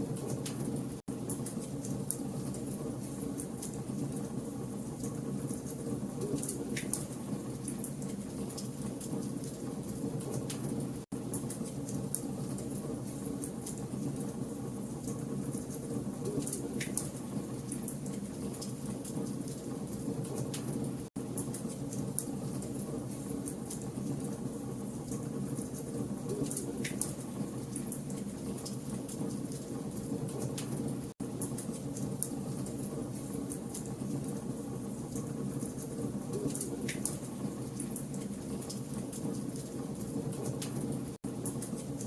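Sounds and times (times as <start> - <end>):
wood fire crackling and popping: 0.0 - 42.0.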